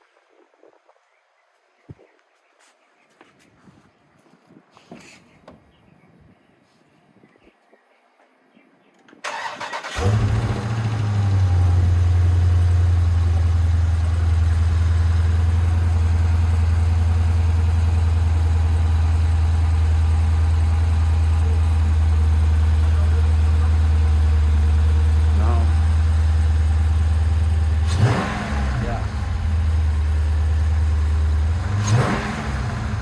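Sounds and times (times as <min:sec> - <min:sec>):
car engine starting and idling: 0:09.2 - 0:33.0.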